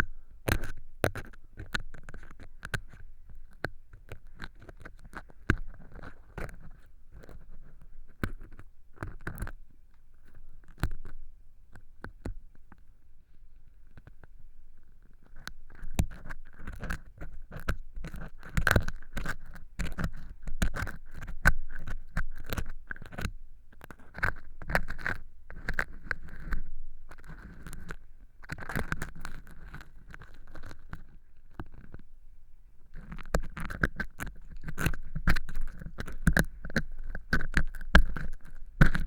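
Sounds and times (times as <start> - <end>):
ear pick scraping fake earwax: 16.1 - 23.3, 24.0 - 32.0, 32.8 - 39.0.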